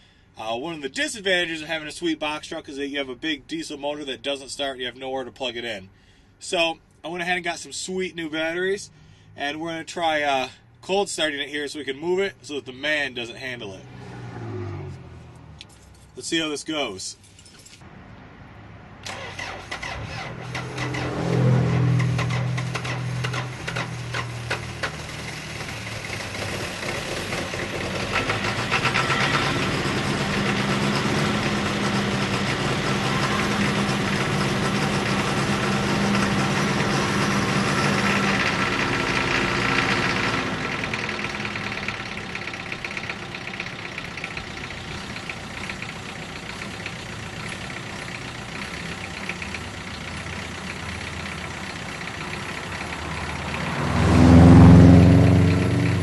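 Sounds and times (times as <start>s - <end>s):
diesel truck engine idling: 21.8s - 56.0s.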